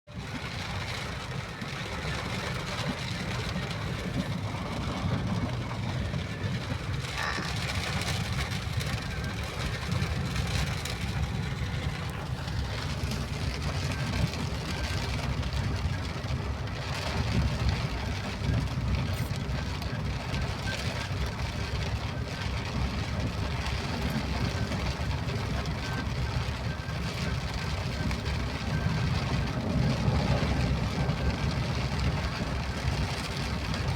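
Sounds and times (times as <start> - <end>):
vehicle engine and road noise: 0.1 - 33.9
rain hissing: 0.4 - 33.9.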